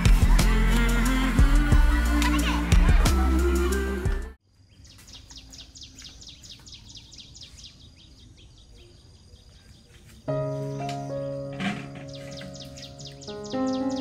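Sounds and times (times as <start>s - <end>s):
background music: 0.0s - 4.4s, 10.3s - 14.0s
outdoor ambience: 0.0s - 14.0s
bird chirping: 4.5s - 14.0s.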